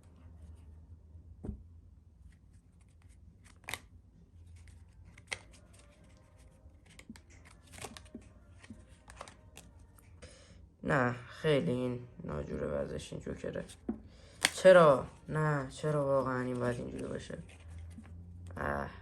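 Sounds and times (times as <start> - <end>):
playing cards rustling and snapping: 2.3 - 10.0, 13.6 - 18.2.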